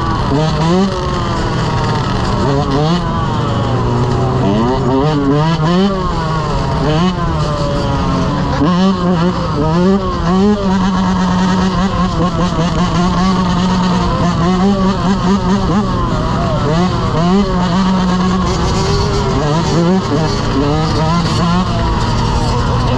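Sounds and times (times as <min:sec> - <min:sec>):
dirt bike engine revving: 0:00.0 - 0:22.9.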